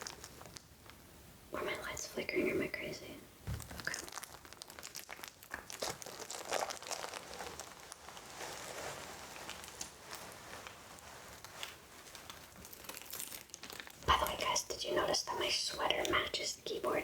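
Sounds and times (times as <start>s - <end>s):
plastic packaging crinkling: 0.0s - 1.0s, 3.5s - 16.1s.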